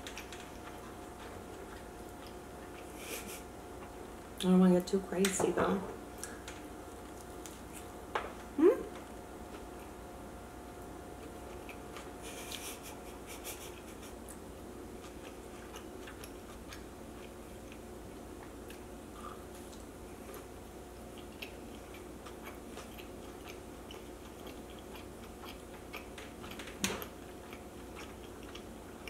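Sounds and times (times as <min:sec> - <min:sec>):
soft chewing clicks: 0:00.0 - 0:04.5, 0:08.9 - 0:10.0, 0:10.7 - 0:29.0.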